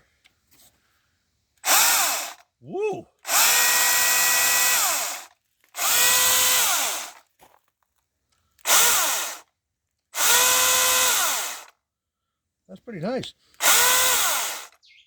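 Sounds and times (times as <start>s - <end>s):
battery chainsaw whining: 1.6s - 2.5s, 3.2s - 7.2s, 8.6s - 9.4s, 10.2s - 11.7s, 13.6s - 14.8s.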